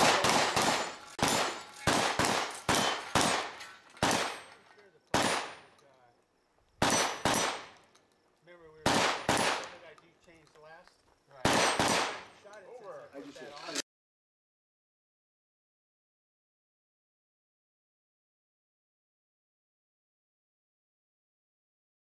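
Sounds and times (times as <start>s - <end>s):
shotgun shots: 0.0s - 5.7s, 6.8s - 7.8s, 8.8s - 9.9s, 11.4s - 12.4s.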